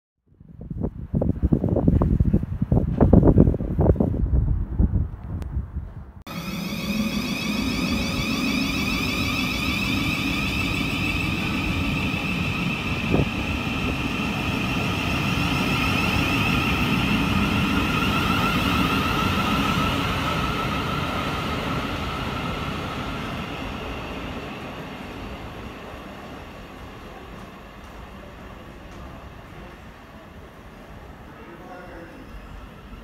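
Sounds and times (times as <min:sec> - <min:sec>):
traction motor whine: 0:06.3 - 0:19.7.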